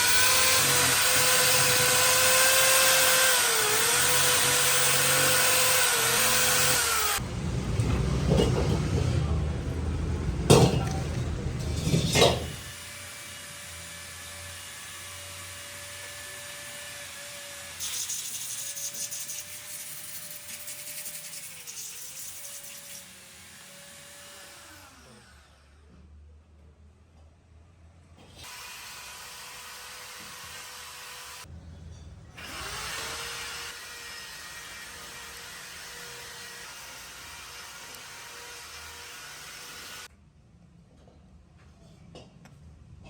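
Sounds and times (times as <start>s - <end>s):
power tool motor whining: 0.0s - 7.2s.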